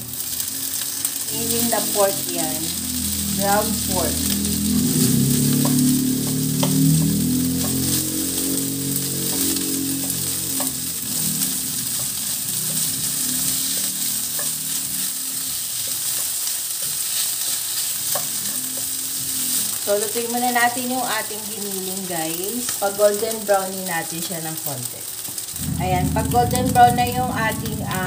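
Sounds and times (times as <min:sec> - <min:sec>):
low hum: 0:00.0 - 0:17.0, 0:17.9 - 0:21.2, 0:25.5 - 0:28.0
meat sizzling in a wok: 0:00.0 - 0:28.0
wooden spoon scraping a pan: 0:05.5 - 0:19.9.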